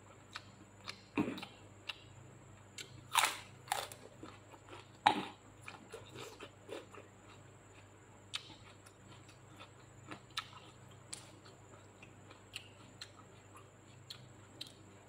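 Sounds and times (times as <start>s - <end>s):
crunching raw vegetable stalk: 2.8s - 5.4s.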